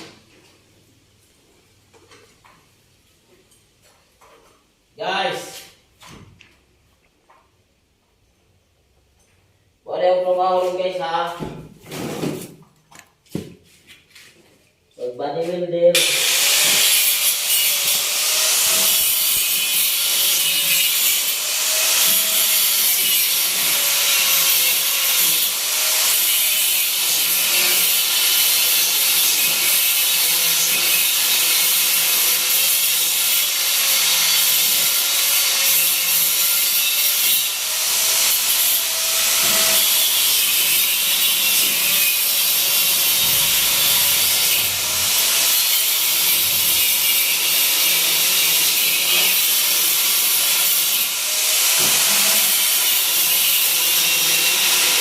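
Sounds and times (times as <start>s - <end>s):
power tool sanding a surface: 16.0s - 55.0s.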